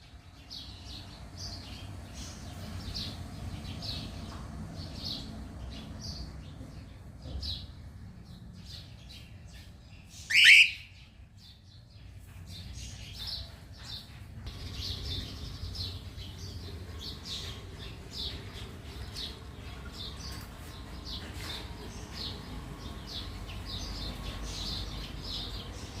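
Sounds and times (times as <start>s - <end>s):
short bird chirps: 10.2s - 11.0s
cockatiel call sliding upward: 10.3s - 10.8s.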